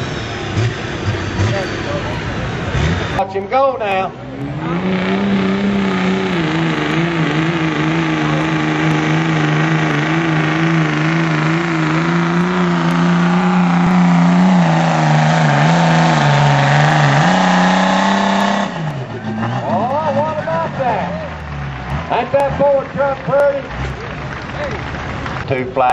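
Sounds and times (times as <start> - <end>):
truck engine at high revs: 0.0 - 25.9.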